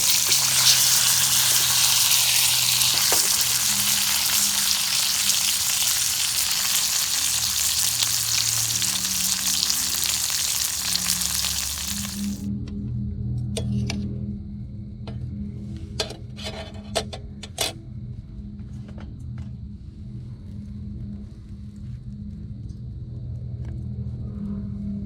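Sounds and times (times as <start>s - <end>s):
steak sizzling in a frying pan: 0.0s - 12.5s.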